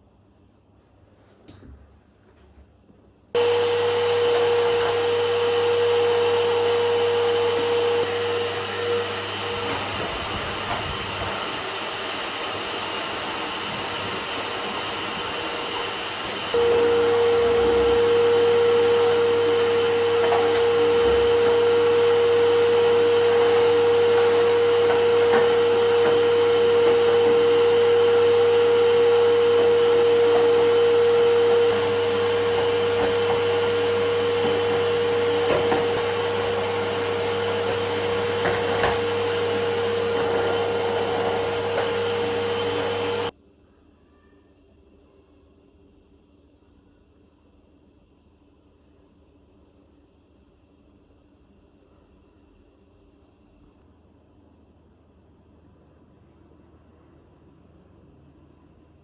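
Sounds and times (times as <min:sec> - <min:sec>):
vacuum cleaner motor humming: 0:03.4 - 0:43.3.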